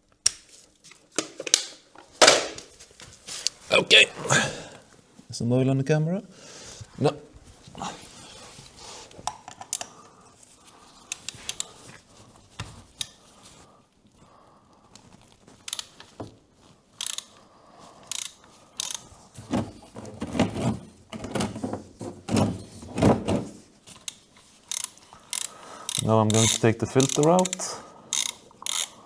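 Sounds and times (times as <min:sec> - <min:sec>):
ratchet wrench clicking: 0:17.0 - 0:17.3, 0:18.1 - 0:19.0, 0:24.7 - 0:29.0.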